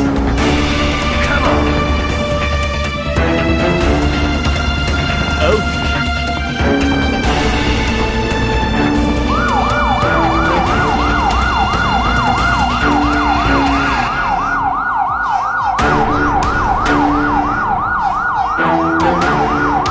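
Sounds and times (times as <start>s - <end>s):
electronic siren yelping: 9.3s - 19.9s.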